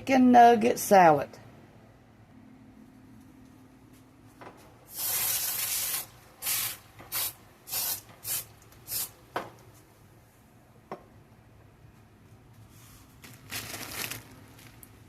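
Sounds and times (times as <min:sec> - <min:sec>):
spray hissing: 0:04.9 - 0:09.2.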